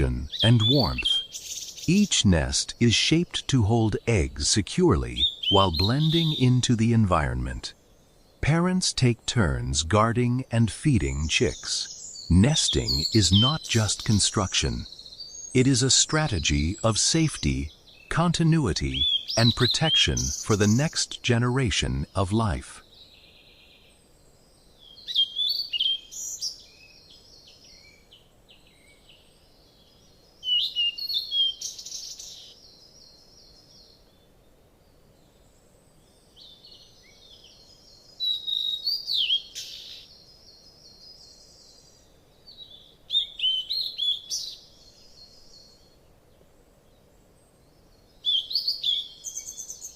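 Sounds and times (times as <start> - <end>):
songbird chirps and trills: 0.0 - 49.9.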